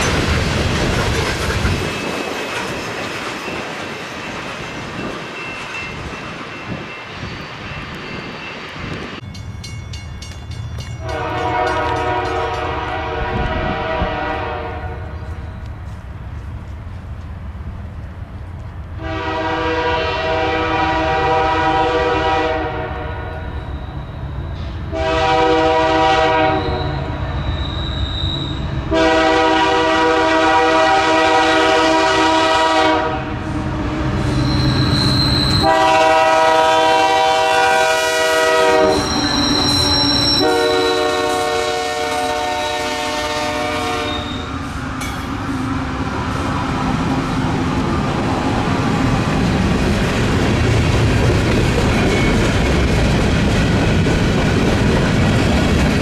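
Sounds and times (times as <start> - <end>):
train rumbling on rails: 0.0 - 56.0
locomotive air horn blasts: 11.0 - 15.2, 19.0 - 23.8, 24.6 - 27.2, 28.9 - 33.5, 34.8 - 44.6.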